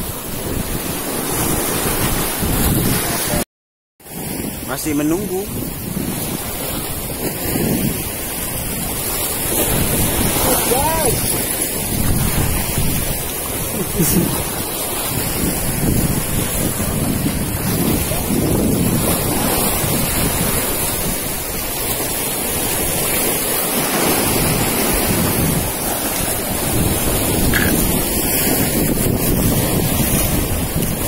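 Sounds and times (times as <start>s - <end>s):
surf breaking on beach: 0.0s - 3.4s, 4.0s - 31.0s
wind buffeting microphone: 0.0s - 3.4s, 4.1s - 31.0s.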